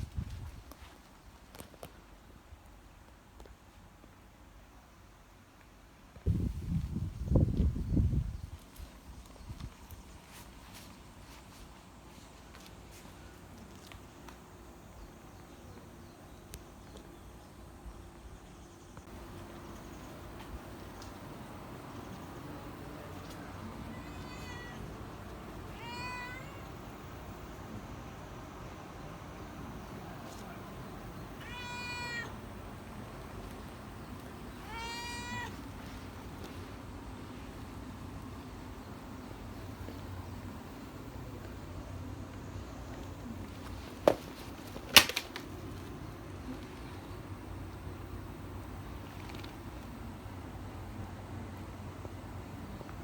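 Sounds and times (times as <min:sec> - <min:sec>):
faint insect chirring: 0:07.2 - 0:53.0
cat meowing: 0:23.8 - 0:25.0, 0:25.7 - 0:26.7, 0:31.4 - 0:32.4, 0:34.5 - 0:35.7.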